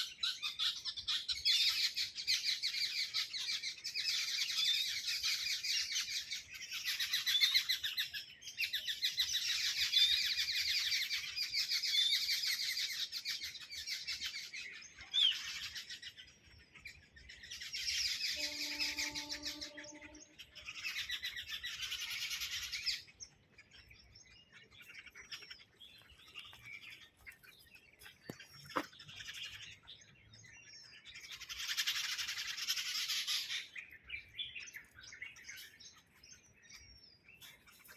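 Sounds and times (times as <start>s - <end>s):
flock of birds chirping: 0.0s - 37.9s.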